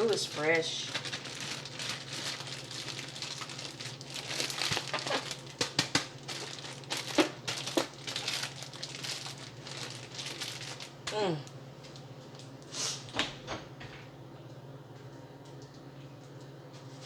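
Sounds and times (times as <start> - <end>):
plastic bag crinkling: 0.0 - 11.1
plastic bag sharp crackles: 0.0 - 11.1.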